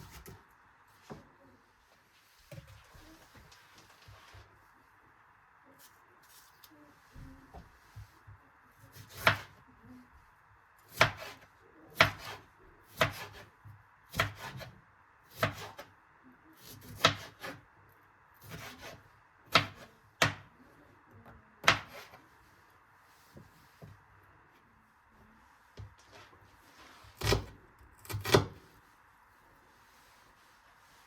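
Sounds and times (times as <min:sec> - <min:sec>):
knife chopping on wooden board: 0:10.9 - 0:11.4, 0:12.0 - 0:13.4, 0:14.1 - 0:14.7, 0:15.3 - 0:15.8, 0:16.8 - 0:17.6, 0:18.4 - 0:20.5, 0:21.6 - 0:22.2.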